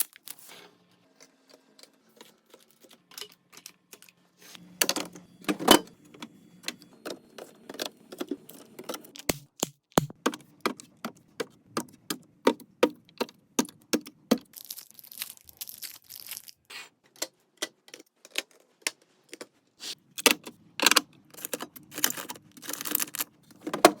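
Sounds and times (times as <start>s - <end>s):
packaging rustle: 14.5s - 16.7s, 21.4s - 24.0s.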